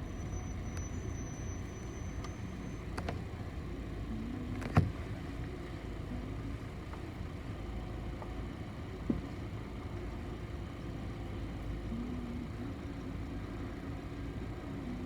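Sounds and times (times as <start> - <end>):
faint high whine: 0.0 - 3.0
bus engine rumble: 0.0 - 15.0.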